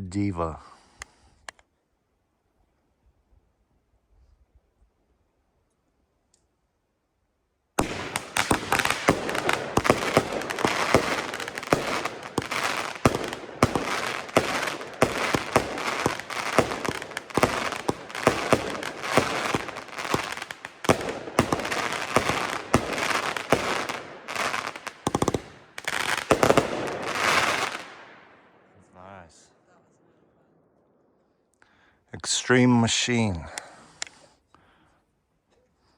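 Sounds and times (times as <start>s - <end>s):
firework cake launches and bursts: 7.8s - 28.0s.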